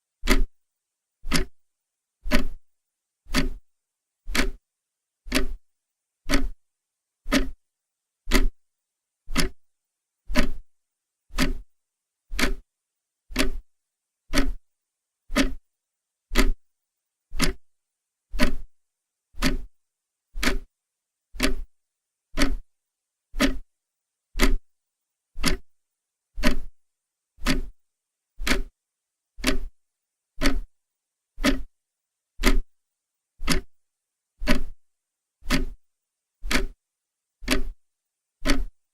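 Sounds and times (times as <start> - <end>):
clock ticking: 1.3 - 1.5, 2.3 - 2.6, 3.3 - 3.6, 4.3 - 4.6, 5.3 - 5.6, 6.3 - 6.6, 7.3 - 7.6, 8.3 - 8.6, 9.3 - 9.6, 10.3 - 10.6, 11.3 - 11.6, 12.3 - 12.6, 13.3 - 13.6, 14.3 - 14.6, 15.3 - 15.6, 16.4 - 16.6, 17.4 - 17.6, 18.4 - 18.7, 19.4 - 19.7, 20.4 - 20.7, 21.4 - 21.6, 22.4 - 22.6, 23.4 - 23.6, 24.4 - 24.6, 25.4 - 25.7, 26.4 - 26.7, 27.4 - 27.7, 28.4 - 28.7, 29.4 - 29.7, 30.4 - 30.7, 31.4 - 31.7, 32.4 - 32.7, 33.4 - 33.8, 34.4 - 34.8, 35.4 - 35.8, 36.4 - 36.8, 37.4 - 37.8, 38.4 - 38.8.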